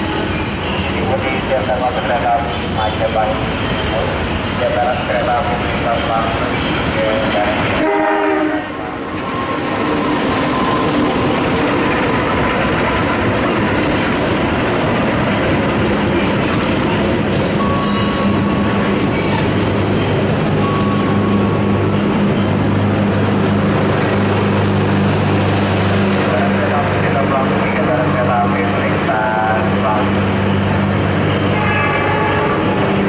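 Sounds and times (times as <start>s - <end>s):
coaches rumbling on rails: 0.0s - 33.0s
train horn: 7.7s - 8.9s, 31.5s - 32.8s.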